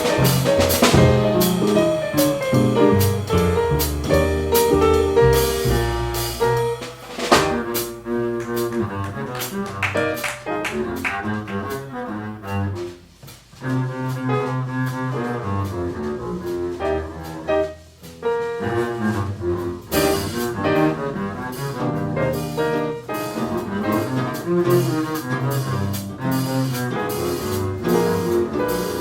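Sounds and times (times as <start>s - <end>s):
drums: 0.0s - 11.0s, 17.8s - 29.0s
double bass walking line: 0.0s - 29.0s
piano: 0.0s - 29.0s.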